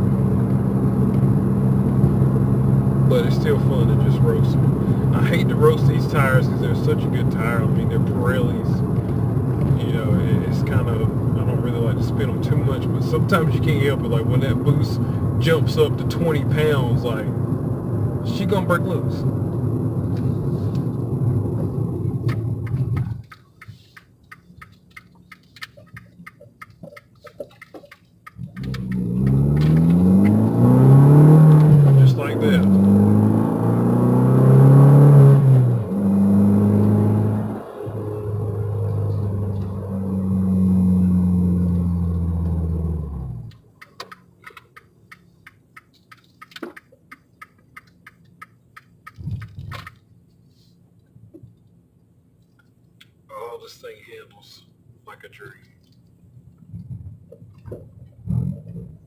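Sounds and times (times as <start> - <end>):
car engine running loudly: 0.0 - 23.3, 28.4 - 43.6
sharp clicks: 22.3 - 30.4, 43.5 - 50.0.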